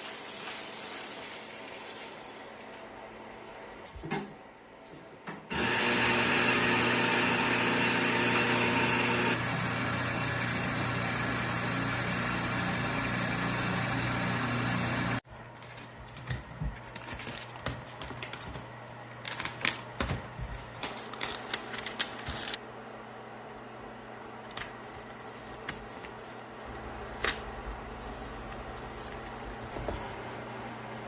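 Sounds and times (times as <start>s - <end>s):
coffee roaster humming and hissing: 5.5s - 15.2s, 26.2s - 31.0s.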